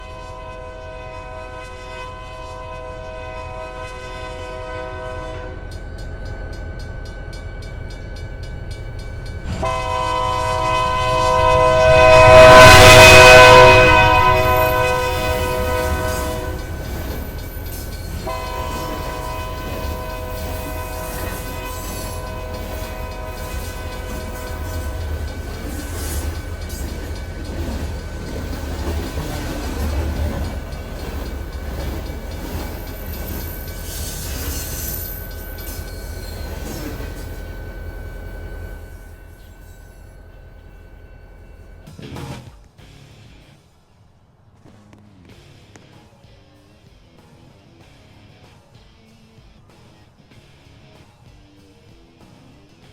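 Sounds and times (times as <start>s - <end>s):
train horn blasts: 0.0s - 5.8s, 9.5s - 40.2s
passing train rumble: 0.0s - 46.3s
high-pitched wheel squeal: 9.5s - 41.9s.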